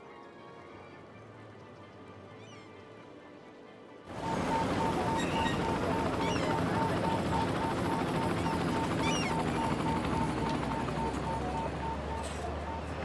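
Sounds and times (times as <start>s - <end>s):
engine with fast rattle: 4.1s - 13.0s
bird chirps: 4.2s - 13.0s.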